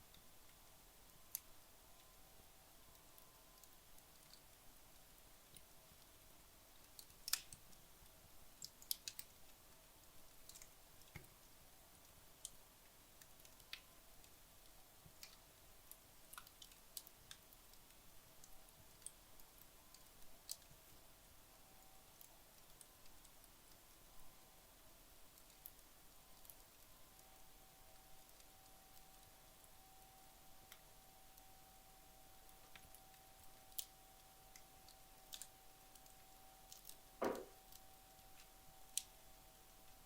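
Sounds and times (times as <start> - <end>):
fire crackling: 0.0 - 40.0
sharp wood pop: 37.2 - 37.5.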